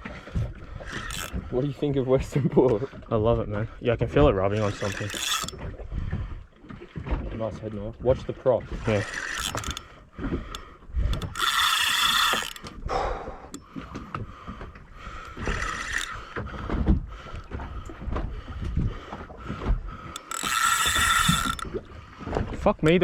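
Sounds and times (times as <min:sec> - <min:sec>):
gear knocking on boat: 0:00.0 - 0:23.0
fishing reel whirring: 0:00.3 - 0:02.4, 0:04.4 - 0:06.8, 0:08.6 - 0:18.2, 0:19.1 - 0:22.5.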